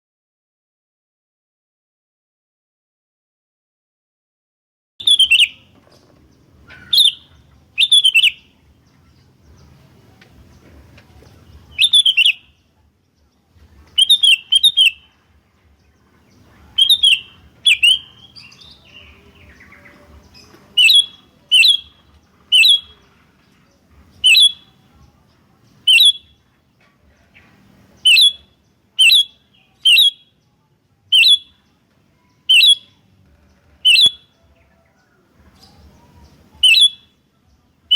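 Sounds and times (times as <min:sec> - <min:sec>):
bulbul chirping calls: 0:05.0 - 0:09.8, 0:11.6 - 0:12.7, 0:13.9 - 0:15.1, 0:16.2 - 0:23.1, 0:24.0 - 0:24.9, 0:25.6 - 0:26.4, 0:27.4 - 0:30.4, 0:31.1 - 0:33.1, 0:33.8 - 0:34.5, 0:35.5 - 0:37.2.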